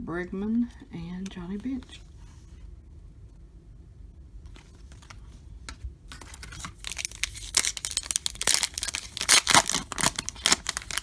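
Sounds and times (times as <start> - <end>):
wrapper tearing and crinkling: 6.2 - 11.0.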